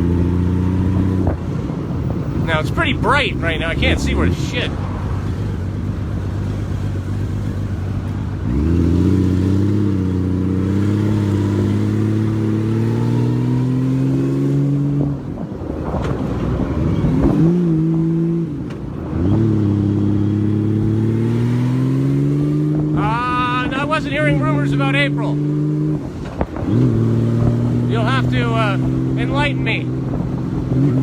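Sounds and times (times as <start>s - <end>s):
motorcycle engine revving: 0.0s - 31.0s
wind and road noise: 0.0s - 31.0s.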